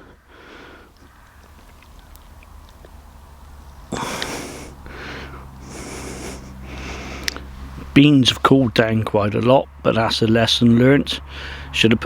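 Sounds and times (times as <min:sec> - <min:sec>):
man breathing: 0:00.0 - 0:01.2, 0:03.9 - 0:08.0, 0:11.2 - 0:11.8
faint low hum: 0:00.0 - 0:12.0.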